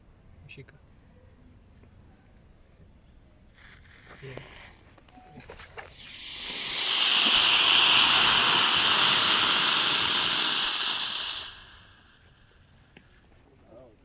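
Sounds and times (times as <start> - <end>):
rocket motor hissing burn: 5.9 - 12.7.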